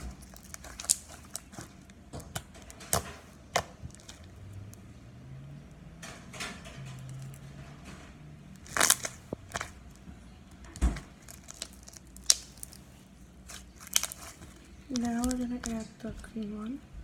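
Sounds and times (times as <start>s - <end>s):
slime crackling and squelching: 0.0s - 4.9s, 8.5s - 16.6s.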